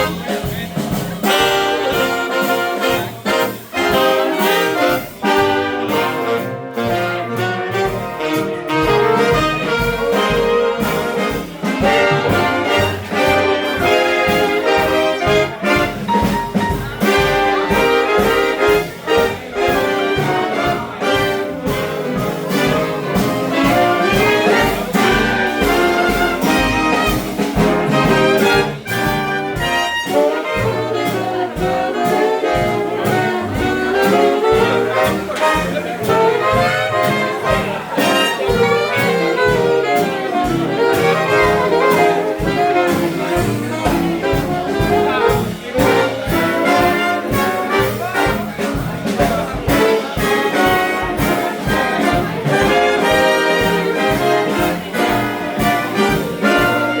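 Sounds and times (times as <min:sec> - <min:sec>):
steady beat: 0:00.0 - 0:57.0
swing big band horns: 0:00.0 - 0:57.0.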